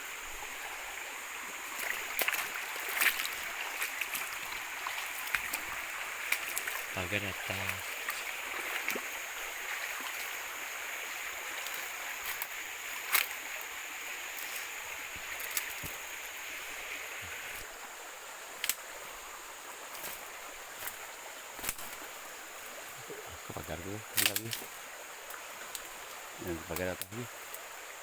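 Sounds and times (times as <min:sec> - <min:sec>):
water rushing: 0:00.0 - 0:28.0
sharp clicks: 0:24.2 - 0:24.6.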